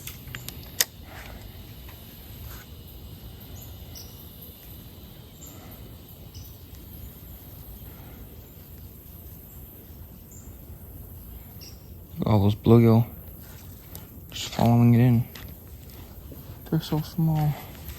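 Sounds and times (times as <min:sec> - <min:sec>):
birds chirping: 0:00.0 - 0:17.9.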